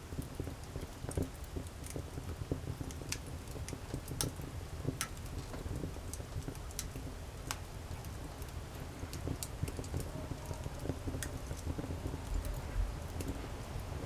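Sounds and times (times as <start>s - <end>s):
low rumble of flame: 0.0s - 14.0s
campfire crackles and pops: 0.1s - 14.0s.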